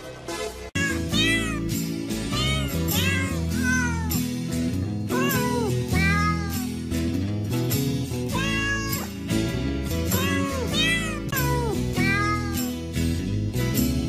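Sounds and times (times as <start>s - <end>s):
background music with bass line: 0.0s - 14.0s
cat meowing: 0.8s - 4.2s, 5.1s - 6.7s, 8.3s - 9.2s, 10.1s - 12.6s.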